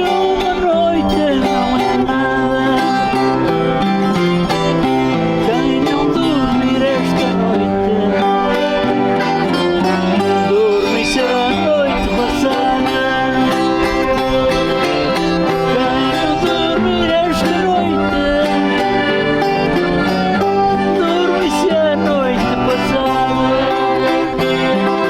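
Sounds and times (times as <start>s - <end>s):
accordion: 0.0s - 25.0s
plucked string instruments: 0.0s - 25.0s.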